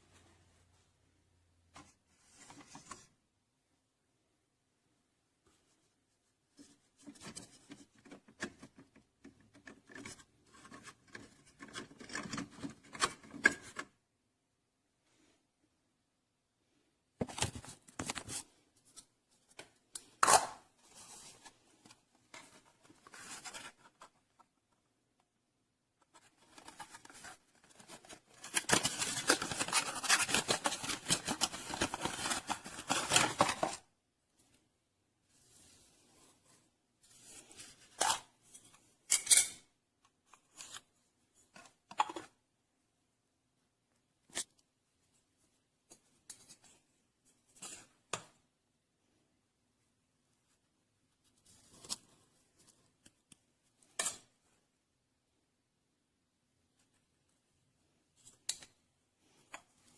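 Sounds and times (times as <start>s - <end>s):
scraping and rustling handling noise: 1.7s - 3.2s, 5.4s - 14.0s, 17.2s - 25.0s, 25.9s - 34.6s, 35.2s - 39.5s
handling rustles: 20.8s - 24.5s, 26.0s - 33.8s.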